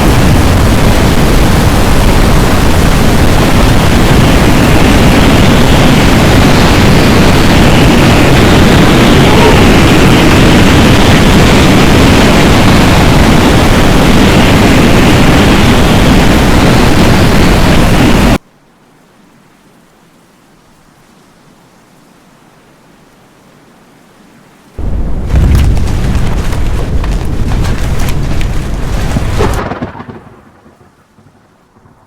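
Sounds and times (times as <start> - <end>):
storm wind and rain rushing: 0.0 - 18.4, 19.0 - 32.0
rapid crackle of hits: 24.8 - 31.9.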